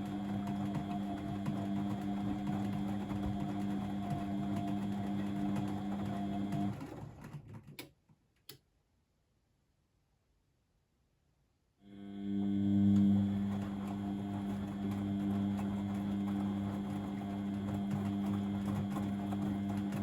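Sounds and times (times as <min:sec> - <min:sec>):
washing machine motor humming: 0:00.0 - 0:07.3, 0:12.0 - 0:20.0.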